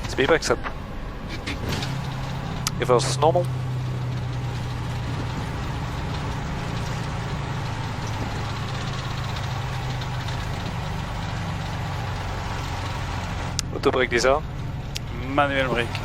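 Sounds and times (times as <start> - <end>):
jet engines in reverse thrust: 0.0 - 16.0
wheels rumbling on runway: 0.0 - 16.0.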